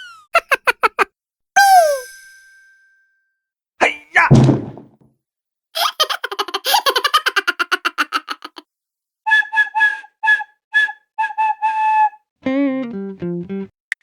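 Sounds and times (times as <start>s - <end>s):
short whistle-like toots: 1.6s - 2.2s.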